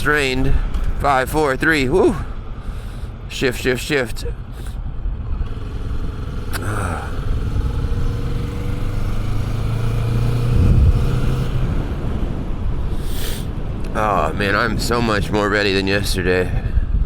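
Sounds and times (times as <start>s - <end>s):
road and wind rush: 0.0s - 17.0s
motorcycle engine running: 4.8s - 12.9s.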